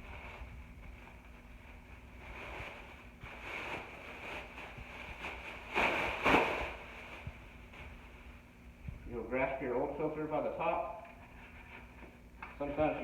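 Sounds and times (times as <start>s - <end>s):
plastic bag crackling: 0.0s - 8.1s
plastic bag rustling: 0.0s - 8.4s.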